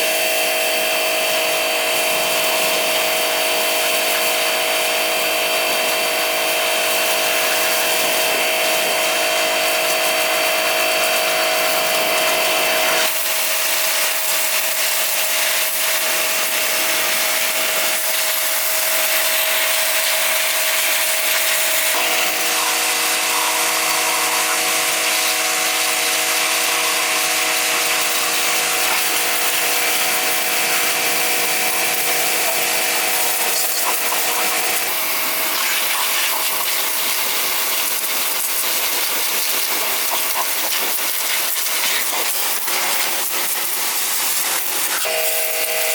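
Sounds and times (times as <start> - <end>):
electric power tool whining: 21.9 - 36.4, 42.2 - 45.9.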